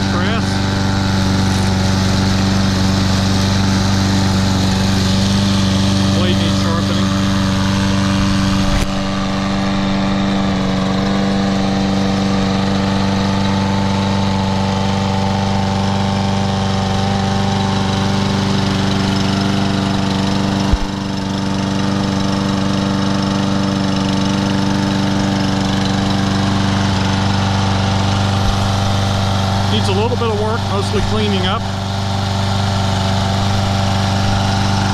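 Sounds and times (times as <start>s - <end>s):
lawn mower engine running: 0.0s - 34.9s
mower knocks: 20.2s - 21.3s, 25.5s - 30.2s.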